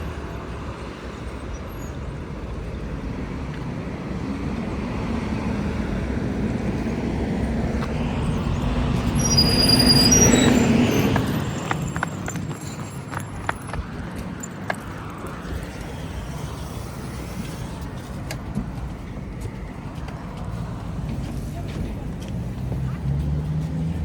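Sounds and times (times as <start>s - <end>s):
vehicle running: 0.0s - 24.0s.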